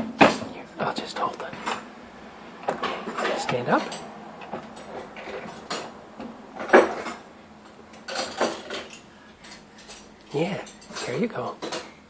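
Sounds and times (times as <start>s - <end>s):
dishes and cutlery clattering: 2.6s - 6.0s, 6.6s - 7.3s, 7.9s - 12.0s.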